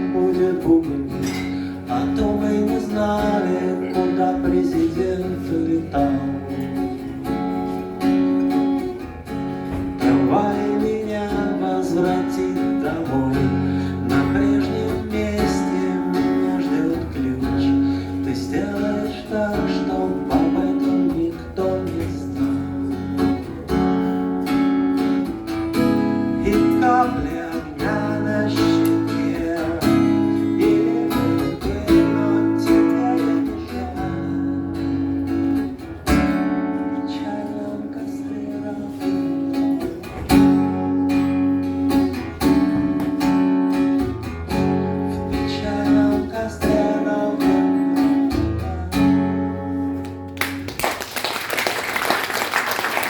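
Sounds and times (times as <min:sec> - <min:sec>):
acoustic guitar strumming: 0:00.0 - 0:50.7
audience applause: 0:50.4 - 0:53.0.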